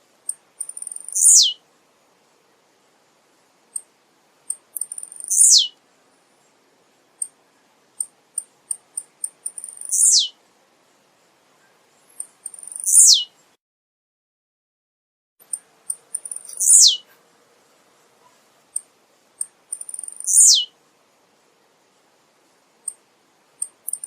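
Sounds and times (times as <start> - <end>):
bird singing high falling notes: 5.3 - 5.7, 9.8 - 10.3, 12.7 - 13.3, 16.3 - 17.0, 20.2 - 20.7.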